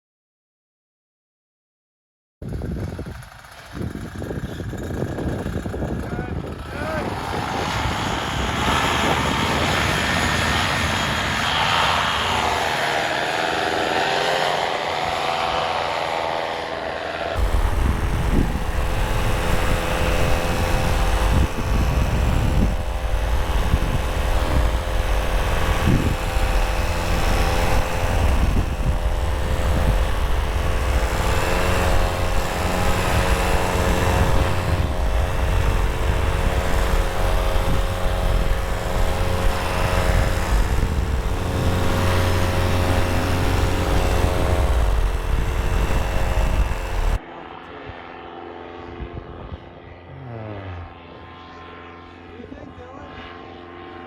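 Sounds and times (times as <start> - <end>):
wind rumble on microphone: 2.4 - 16.7, 17.3 - 47.2, 48.8 - 51.7
paramotor engine and propeller: 2.4 - 54.0.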